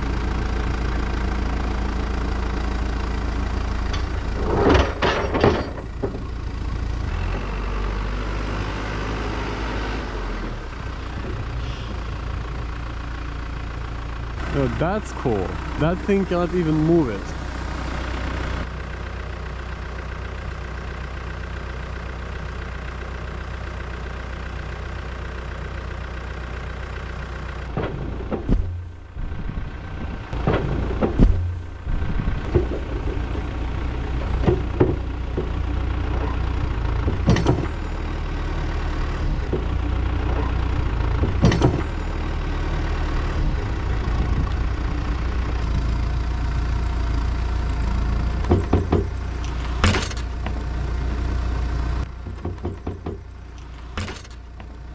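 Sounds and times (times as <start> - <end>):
loader diesel engine running: 0.0 - 54.9
loud clunks and knocks: 3.8 - 7.5, 27.7 - 38.2, 39.0 - 42.4, 47.7 - 51.4, 52.0 - 54.7.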